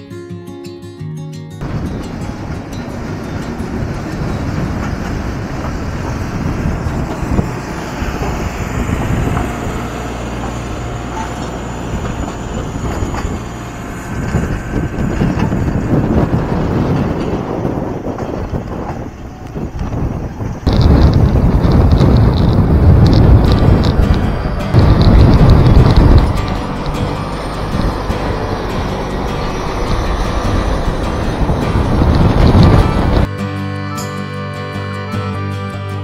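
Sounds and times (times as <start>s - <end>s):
wind noise on microphone: 1.6s - 33.3s
motorcycle engine running: 20.7s - 33.3s.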